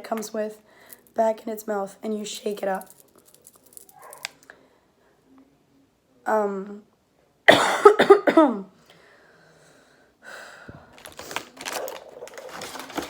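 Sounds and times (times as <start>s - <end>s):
rustling and clicking handling: 2.6s - 4.5s, 10.9s - 13.0s
child coughing hoarsely: 7.5s - 8.7s.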